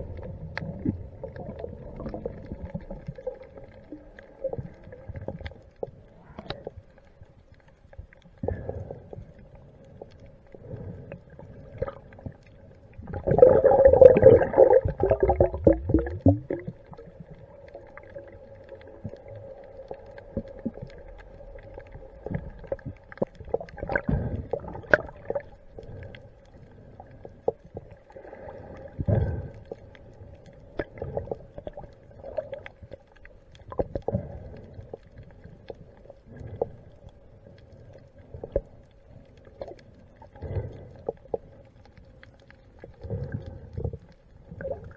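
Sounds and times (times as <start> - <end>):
underwater bubbles gurgling: 0.0 - 44.9
water rushing: 13.1 - 16.7.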